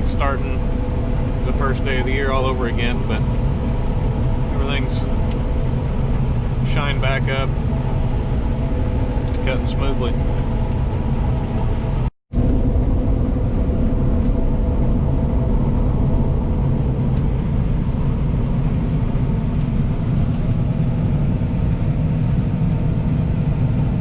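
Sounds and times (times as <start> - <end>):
faint steady tones: 0.0 - 12.1
combine harvester running: 0.0 - 24.0.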